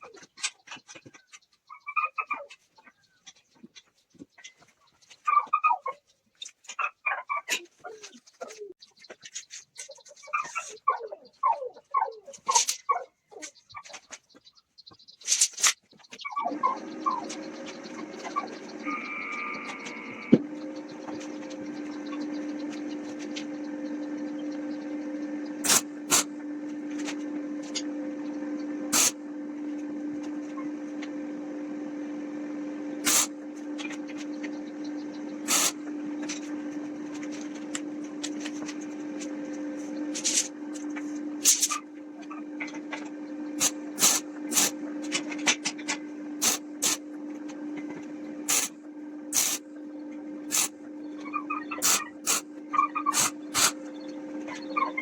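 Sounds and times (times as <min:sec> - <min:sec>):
electric motor humming: 0:16.5 - 0:55.0.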